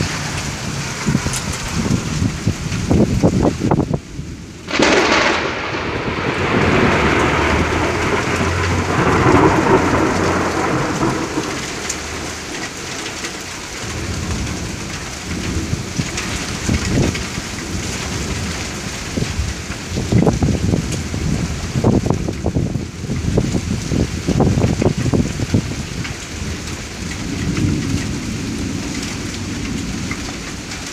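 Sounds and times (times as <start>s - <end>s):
steady rain: 0.0s - 30.9s
thunder cracking and rolling: 0.0s - 30.9s.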